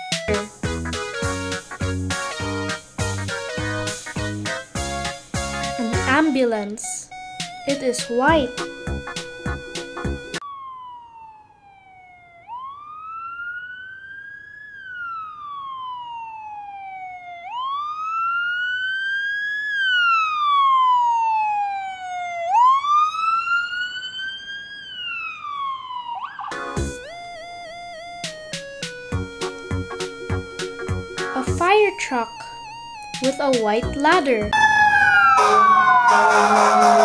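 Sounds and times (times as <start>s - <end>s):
music: 0.0s - 10.4s, 26.5s - 34.6s, 36.1s - 37.0s
ambulance siren wailing: 7.0s - 33.4s, 34.5s - 37.0s.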